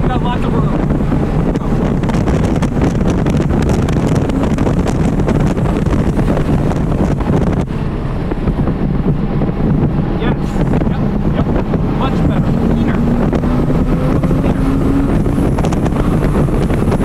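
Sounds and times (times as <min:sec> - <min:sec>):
car engine pulling hard: 0:00.0 - 0:17.0
wind and road noise: 0:00.0 - 0:17.0.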